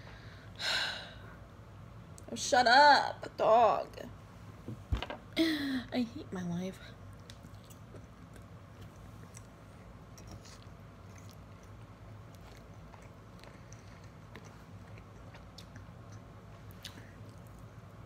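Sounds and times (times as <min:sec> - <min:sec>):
person chewing soft food: 0:07.1 - 0:18.0.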